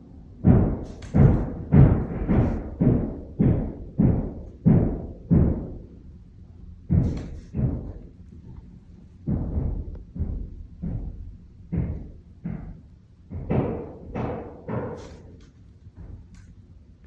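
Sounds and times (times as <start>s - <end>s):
heavy hammering thuds through walls: 0.3s - 8.6s, 9.2s - 16.4s.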